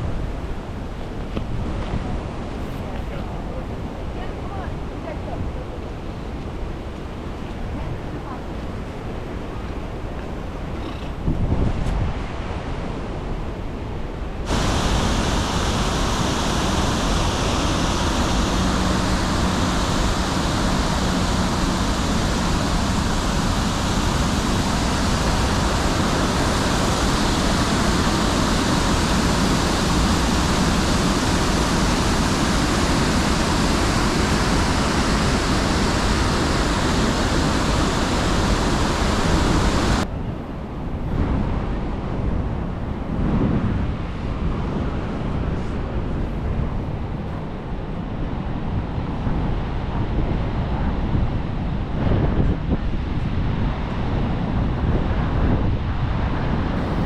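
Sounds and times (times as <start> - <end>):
waterfall rushing: 14.5 - 40.0, 56.8 - 57.0.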